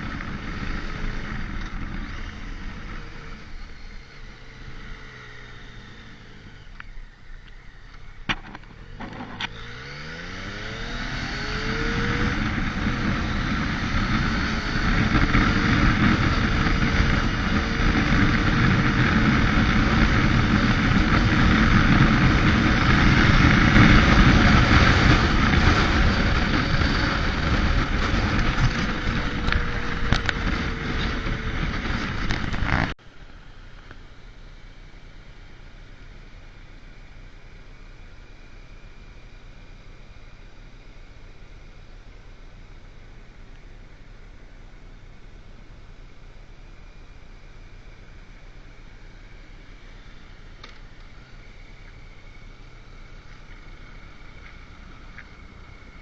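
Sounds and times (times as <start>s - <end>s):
motorcycle engine running: 0.0s - 56.0s
wind rushing on microphone: 9.1s - 33.0s.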